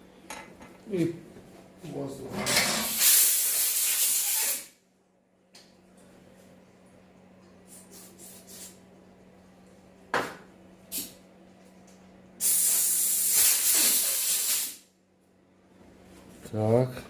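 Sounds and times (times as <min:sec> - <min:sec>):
compressed air blow gun hissing: 0:12.4 - 0:14.8.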